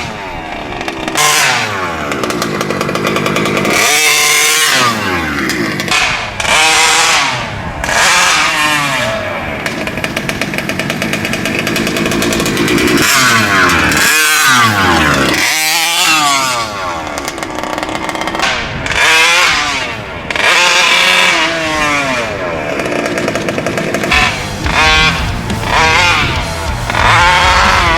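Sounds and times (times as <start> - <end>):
model truck engine revving: 0.0 - 27.9.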